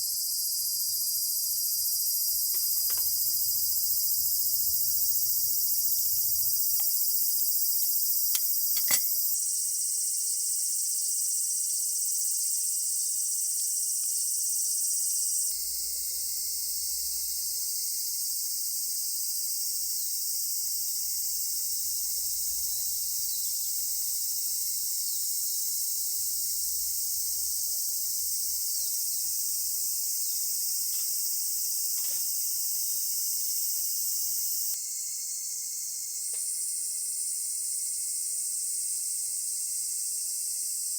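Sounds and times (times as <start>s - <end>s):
high-pitched insect chorus: 0.0s - 40.9s
sharp clicks: 8.2s - 9.3s.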